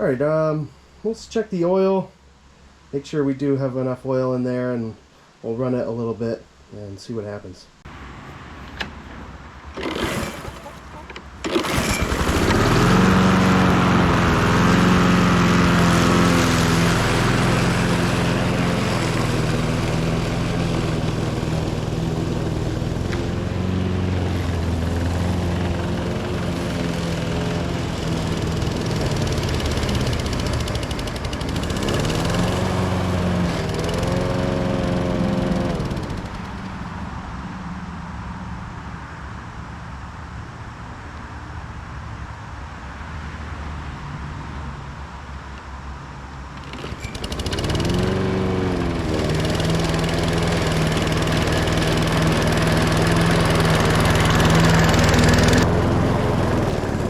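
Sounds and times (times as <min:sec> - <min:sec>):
lawnmower engine starting and running: 0:07.9 - 0:37.9, 0:45.3 - 0:57.0.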